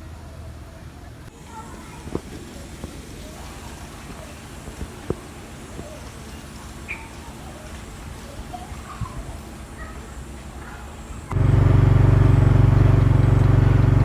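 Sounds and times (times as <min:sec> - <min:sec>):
bird chirps: 0:06.9 - 0:07.2.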